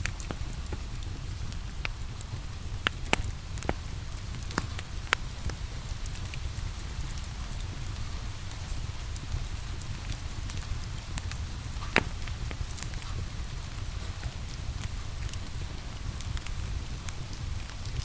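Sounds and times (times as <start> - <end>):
low fire rumble: 0.0 - 18.0
wood fire crackling and popping: 0.0 - 18.0.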